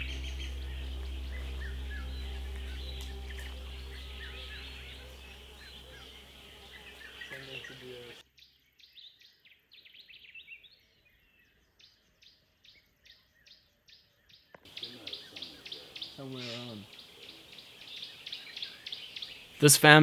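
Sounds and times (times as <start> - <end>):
birds chirping and calling: 0.0 - 8.2, 14.7 - 20.0
steady low hum: 0.0 - 8.2.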